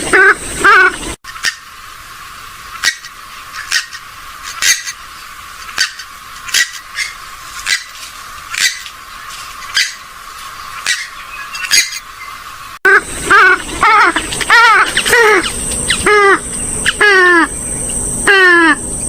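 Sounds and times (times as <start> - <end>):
waterbird squawks: 0.0 - 1.9, 2.6 - 18.8
wavering bird calls: 0.0 - 2.0, 2.6 - 19.0.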